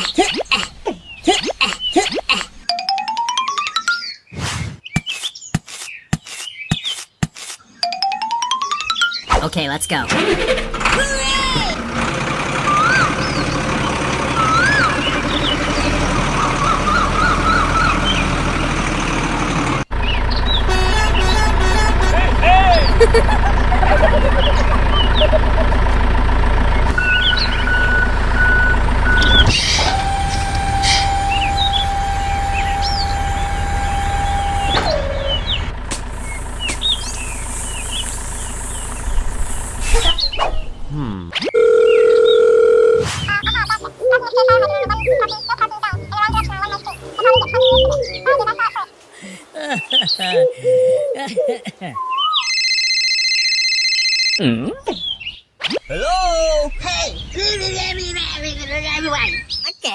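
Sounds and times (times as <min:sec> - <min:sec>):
birds chirping: 0:00.0 - 0:10.1, 0:10.8 - 0:42.5, 0:43.2 - 0:52.8, 0:54.6 - 0:59.9
tractor engine running: 0:09.9 - 0:48.7, 0:55.9 - 0:59.6
low rumble: 0:20.0 - 0:41.3, 0:55.9 - 0:59.5
high tone sliding down: 0:26.9 - 0:41.3, 0:43.4 - 0:48.6.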